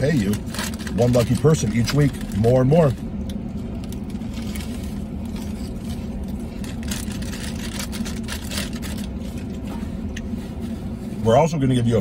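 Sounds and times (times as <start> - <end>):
chip bag crinkling: 0.0 - 3.0, 3.8 - 9.6
vehicle cab low hum: 0.0 - 12.0
crunching of potato chips: 3.7 - 9.7.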